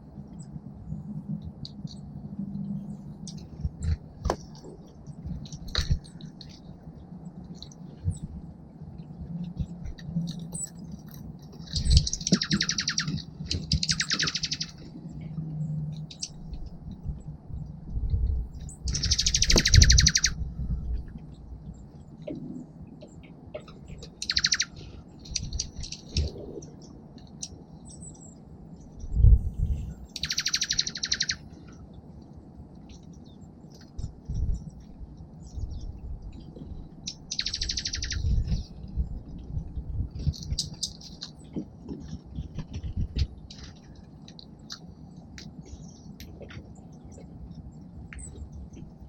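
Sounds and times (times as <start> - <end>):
songbird chirps: 0.0 - 49.0
harsh buzzy bird calls: 30.0 - 31.5, 37.0 - 38.8.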